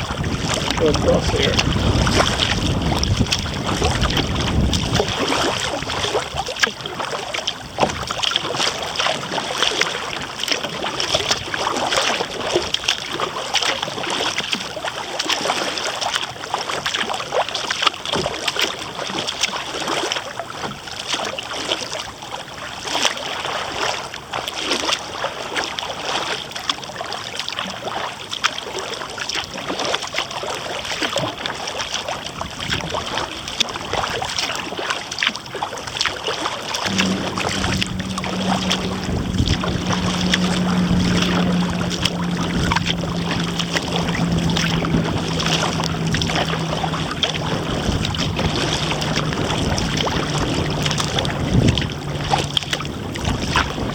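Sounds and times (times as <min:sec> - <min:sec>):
wind buffeting microphone: 0:00.0 - 0:06.5, 0:36.8 - 0:53.9
water splashing around kayak: 0:00.0 - 0:53.9.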